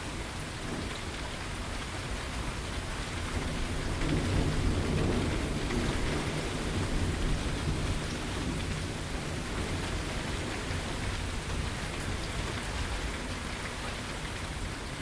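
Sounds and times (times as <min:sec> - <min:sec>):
steady rain falling: 0:00.0 - 0:15.0
thunder rumbling: 0:03.4 - 0:09.5.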